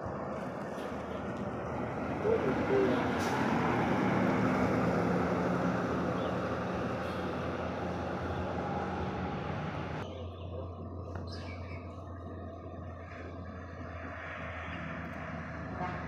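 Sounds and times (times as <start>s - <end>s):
road noise hiss: 0.0s - 10.1s
heavy truck engine: 0.0s - 16.0s.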